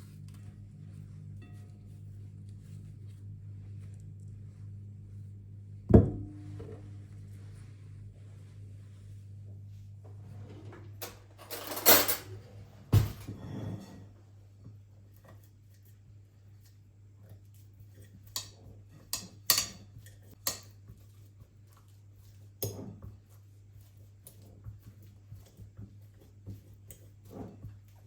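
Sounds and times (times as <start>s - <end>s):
faint low hum: 0.0s - 17.5s
dishes and utensils clattering: 11.0s - 14.1s.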